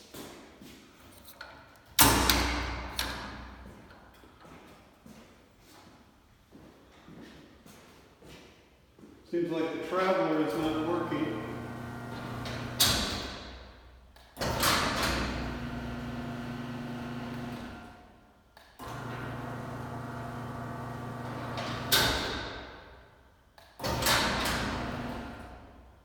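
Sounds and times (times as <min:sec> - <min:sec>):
garage door opener clunks: 0:02.0 - 0:03.7, 0:10.9 - 0:23.0, 0:23.6 - 0:25.8
garage door opener motor hum: 0:10.8 - 0:13.6, 0:14.4 - 0:18.2, 0:18.8 - 0:22.8, 0:23.8 - 0:25.8.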